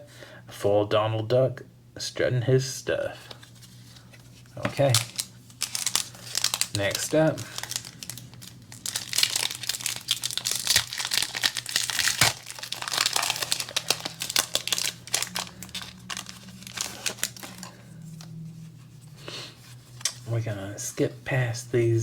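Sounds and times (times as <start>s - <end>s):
plastic wrapper tearing and crinkling: 3.9s - 18.3s.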